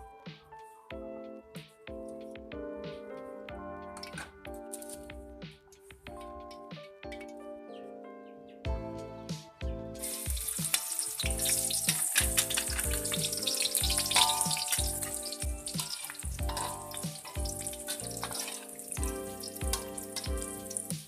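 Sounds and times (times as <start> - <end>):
background music with a beat: 0.0 - 8.0, 8.6 - 21.0
food sizzling in hot oil: 10.0 - 21.0.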